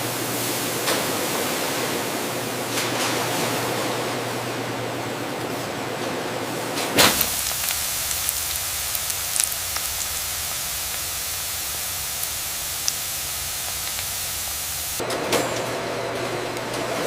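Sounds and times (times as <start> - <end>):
steady hissing: 7.0 - 15.0
low hum: 7.2 - 15.0.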